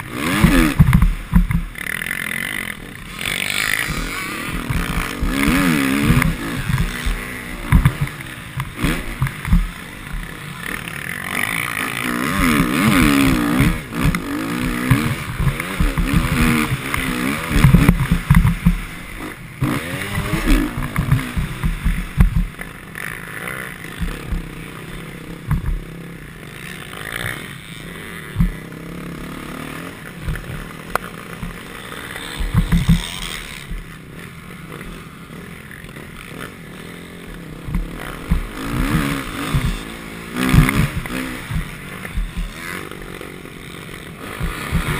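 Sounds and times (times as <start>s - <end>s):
motocross bike engine revving: 0.0s - 44.9s.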